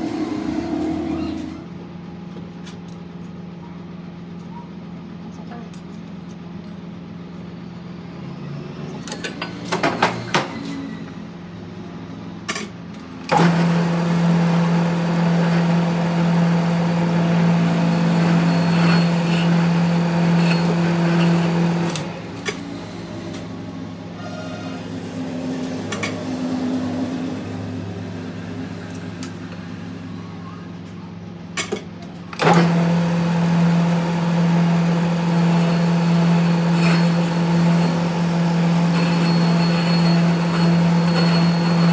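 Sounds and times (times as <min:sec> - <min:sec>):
loud machining noise: 0:00.0 - 0:01.8, 0:13.3 - 0:30.2, 0:32.4 - 0:41.9
workshop machinery humming: 0:00.0 - 0:04.6, 0:05.8 - 0:41.9.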